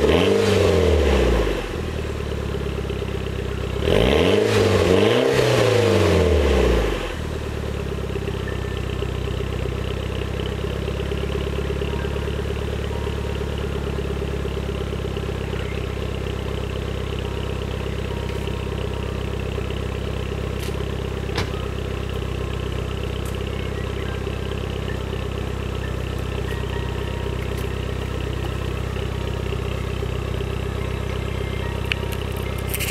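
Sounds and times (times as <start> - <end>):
car engine revving and idling: 0.0 - 32.9.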